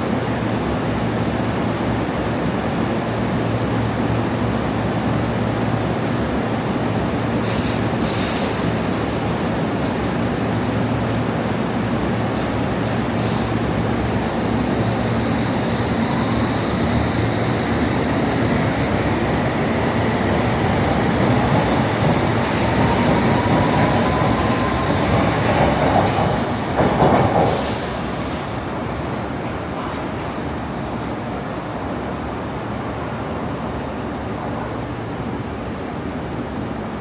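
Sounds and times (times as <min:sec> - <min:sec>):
underground train rumbling: 0:00.0 - 0:37.0
train motor whine: 0:12.1 - 0:25.2.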